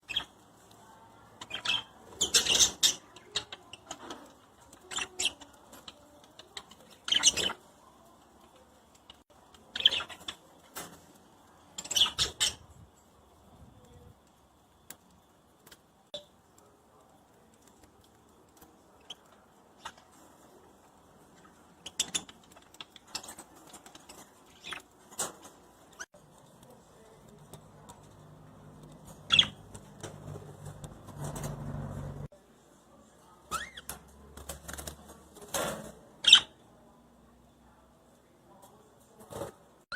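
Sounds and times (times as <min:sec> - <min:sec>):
budgerigars chirping: 0:29.2 - 0:29.6.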